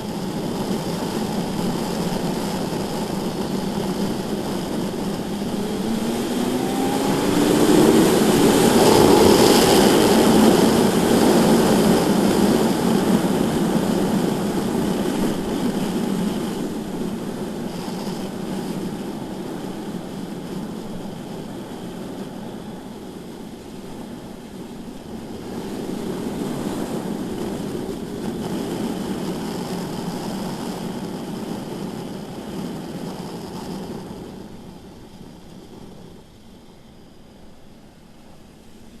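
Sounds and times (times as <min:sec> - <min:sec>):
wind rush: 0:00.0 - 0:39.0
motorcycle engine accelerating: 0:00.8 - 0:18.8.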